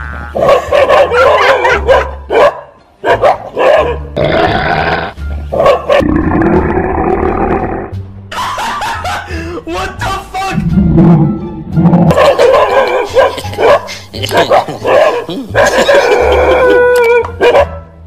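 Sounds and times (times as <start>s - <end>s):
dogs barking and growling: 0.4s - 7.9s, 11.8s - 17.8s.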